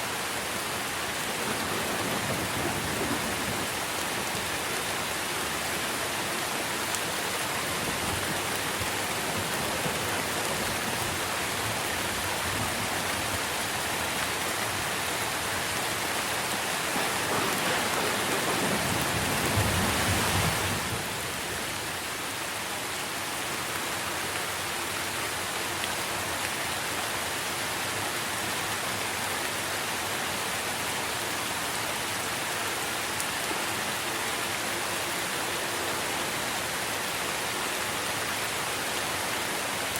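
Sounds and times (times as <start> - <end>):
rain pattering on foliage: 0.0 - 39.9.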